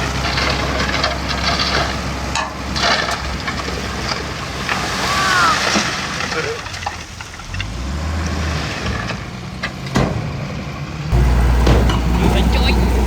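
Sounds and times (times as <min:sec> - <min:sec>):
machine clattering and rattling: 0:00.0 - 0:04.4
diesel engine running: 0:00.0 - 0:05.0, 0:10.3 - 0:13.0.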